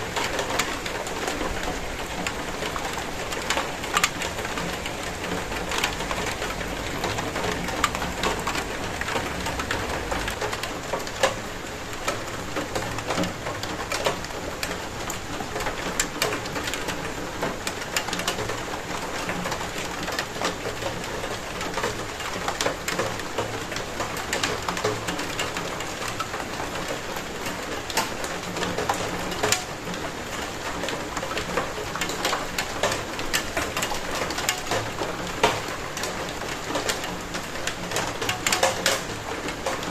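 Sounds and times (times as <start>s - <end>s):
rain drops on hard surface: 0.0s - 39.9s.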